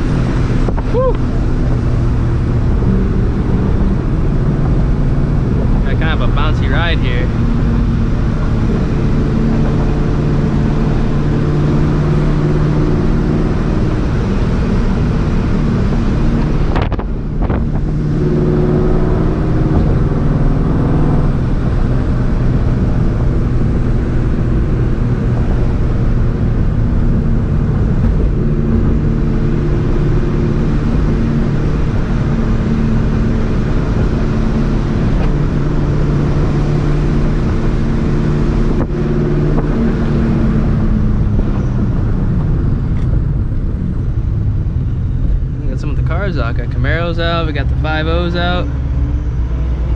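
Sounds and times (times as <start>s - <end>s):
supercharged car engine running: 0.0s - 49.9s.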